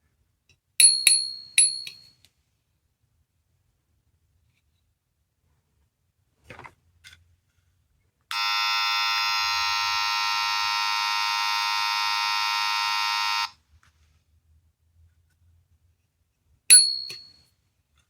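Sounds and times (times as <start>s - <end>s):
electronic alarm ringing tone: 8.3s - 13.5s.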